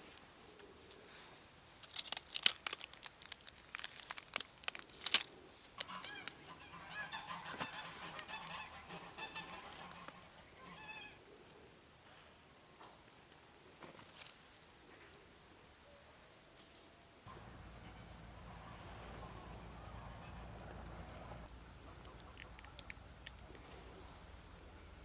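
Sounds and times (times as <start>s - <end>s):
sharp clicks and crackles: 1.8s - 6.5s, 22.0s - 23.6s
geese honking: 5.8s - 11.2s, 17.3s - 22.8s.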